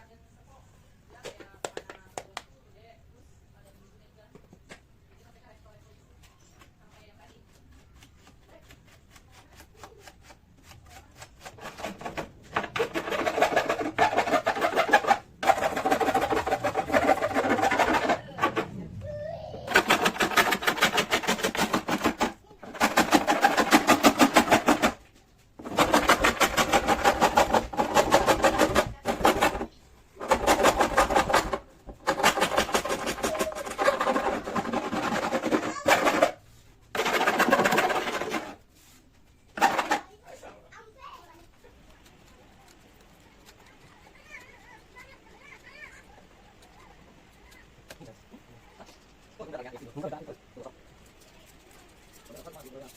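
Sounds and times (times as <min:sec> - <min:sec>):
power tool rattling: 0:11.8 - 0:18.8, 0:19.7 - 0:25.0, 0:25.6 - 0:38.6, 0:39.6 - 0:40.2.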